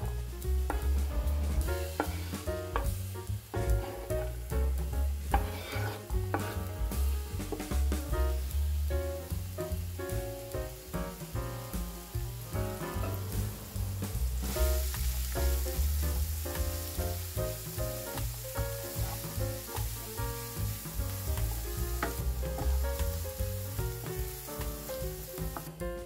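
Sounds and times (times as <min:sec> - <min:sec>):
background music with bass: 0:00.0 - 0:26.0
vegetables sizzling in oil: 0:00.0 - 0:26.0
wooden spatula scraping a pan: 0:01.5 - 0:08.0, 0:16.8 - 0:23.2.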